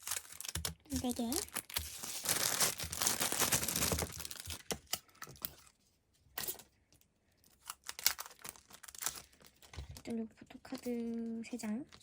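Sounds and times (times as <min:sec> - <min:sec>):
packaging crinkling and tearing: 0:00.0 - 0:05.5, 0:07.4 - 0:10.1.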